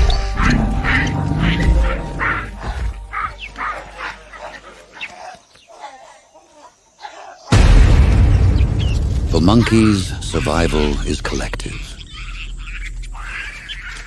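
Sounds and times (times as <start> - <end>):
monkey alarm calls: 0.0 - 7.5, 12.0 - 14.0
loud low boom: 7.5 - 13.3
low music rumble: 7.6 - 14.0.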